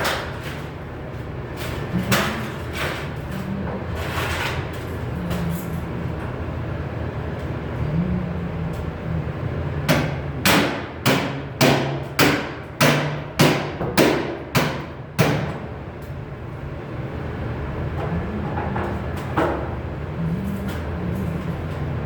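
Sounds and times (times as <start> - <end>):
steady low hum: 0.0 - 22.0
hammer striking sheet metal: 9.9 - 15.6.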